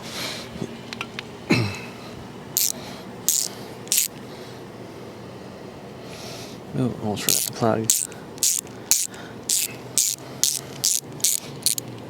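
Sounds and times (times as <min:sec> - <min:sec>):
ratchet wrench clicking: 0:02.6 - 0:04.2, 0:07.3 - 0:12.0.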